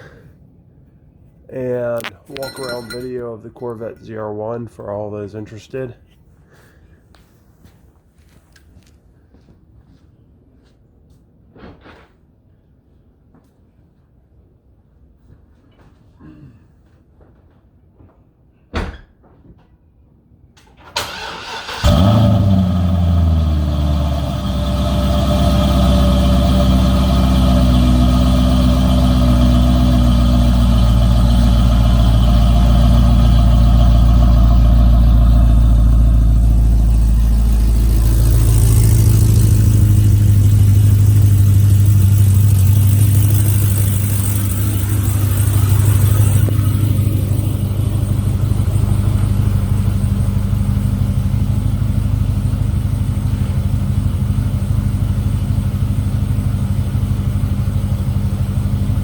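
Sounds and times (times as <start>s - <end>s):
car engine idling: 1.5s - 4.2s, 21.1s - 59.0s.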